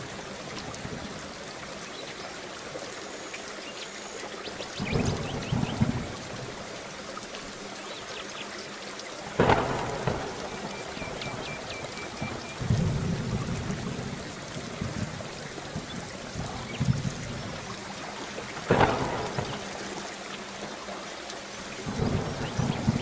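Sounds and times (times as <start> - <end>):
steady rain falling: 0.0 - 23.0
thunder crack: 4.8 - 6.5, 9.4 - 15.2, 18.6 - 20.0, 21.9 - 23.0
thunder rumbles: 4.8 - 6.8, 9.2 - 20.4, 21.8 - 23.0.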